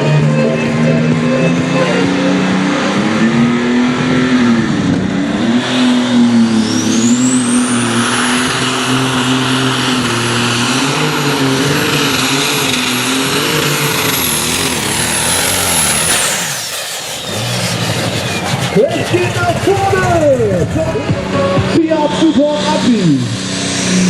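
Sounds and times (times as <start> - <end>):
high whine: 0.0 - 24.0
tractor engine running hard: 0.0 - 24.0.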